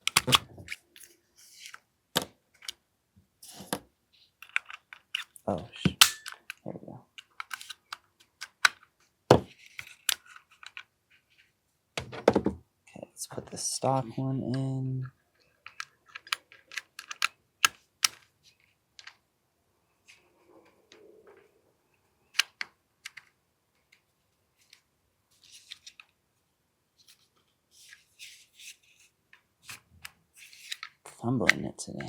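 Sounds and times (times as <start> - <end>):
pistol parts clicking: 6.0 - 6.6, 15.6 - 17.8.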